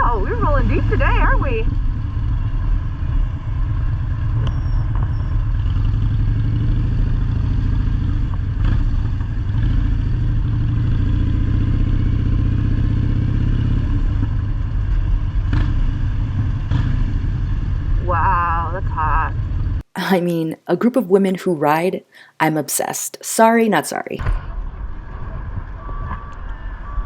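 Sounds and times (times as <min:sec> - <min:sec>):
motorcycle engine rumbling: 0:00.0 - 0:19.8.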